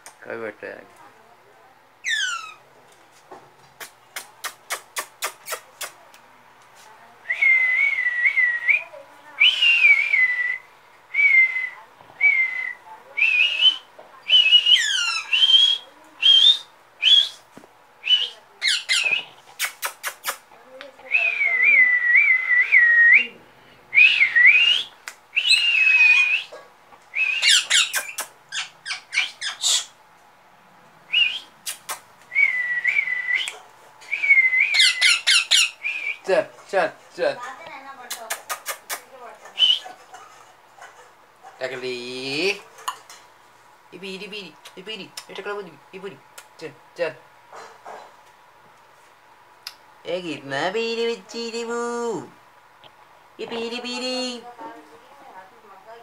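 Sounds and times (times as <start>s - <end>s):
parakeet whistling chirping calls: 2.0s - 2.6s, 13.7s - 17.4s, 18.0s - 19.3s, 24.0s - 26.5s, 27.1s - 30.0s, 34.1s - 36.3s, 39.6s - 40.0s.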